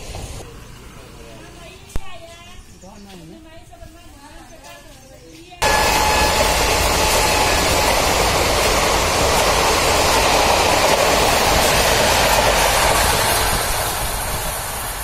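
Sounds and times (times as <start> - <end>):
train wheels rushing on rails: 0.0 - 0.4, 5.6 - 15.0.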